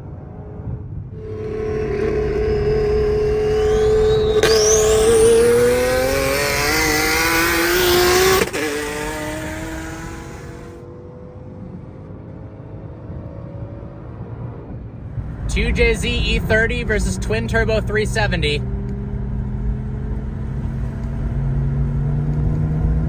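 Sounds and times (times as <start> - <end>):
car engine at full throttle: 1.2 - 14.2.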